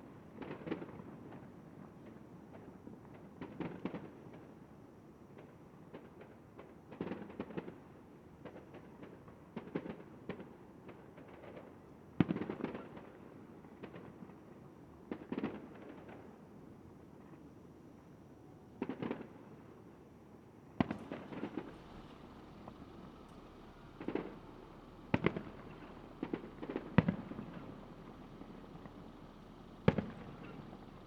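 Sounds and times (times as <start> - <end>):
distant fireworks bangs and crackles: 18.8 - 19.9, 20.7 - 31.0
sharp firework bang: 20.8 - 31.0.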